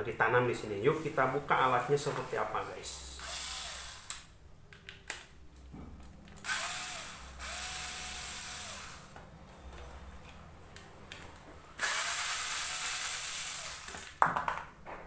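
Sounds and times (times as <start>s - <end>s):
electric drill motor whine: 3.2s - 4.3s, 6.4s - 9.1s, 11.8s - 14.1s.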